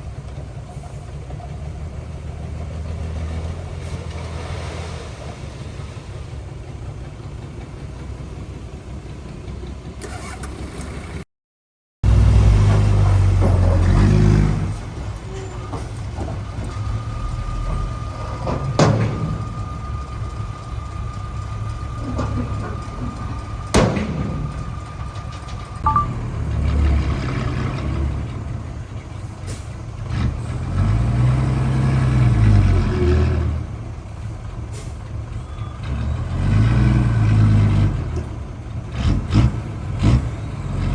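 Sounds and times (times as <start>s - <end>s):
diesel engines rumbling and revving: 0.0s - 11.3s, 12.0s - 40.9s.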